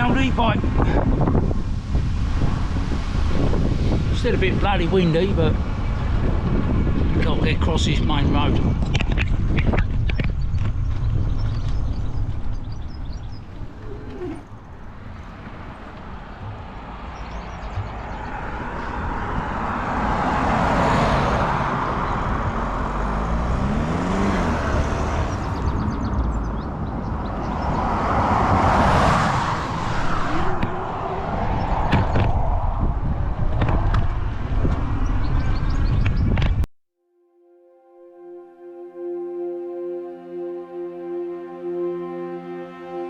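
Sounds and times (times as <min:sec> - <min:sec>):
cars passing: 0:00.0 - 0:07.2, 0:12.0 - 0:36.2
wind buffeting microphone: 0:00.0 - 0:20.4, 0:21.4 - 0:36.7.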